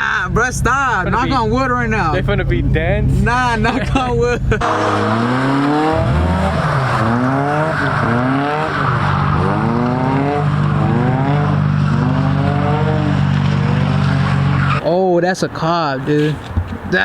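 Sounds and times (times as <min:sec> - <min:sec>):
car engine revving: 0:00.0 - 0:17.0
tyre noise on wet pavement: 0:04.6 - 0:17.0.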